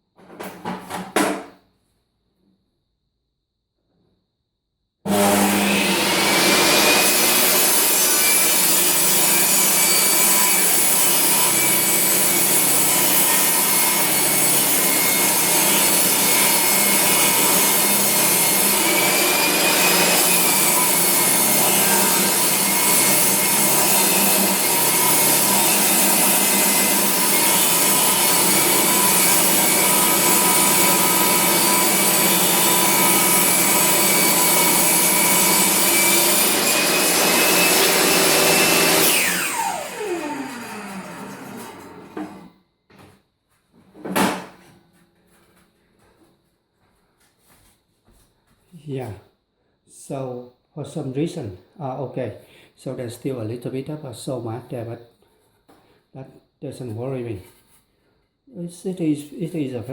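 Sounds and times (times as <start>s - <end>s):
table saw ripping wood: 5.1s - 42.5s.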